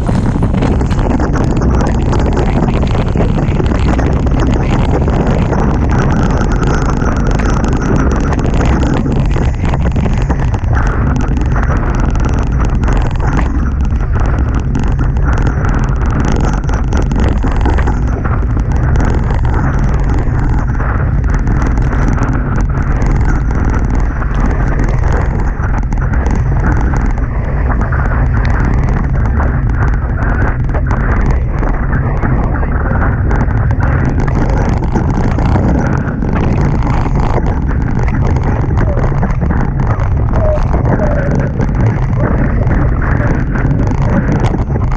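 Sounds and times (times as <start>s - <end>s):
water rushing past hulls: 0.0s - 44.9s
wind buffeting microphone: 0.0s - 44.9s.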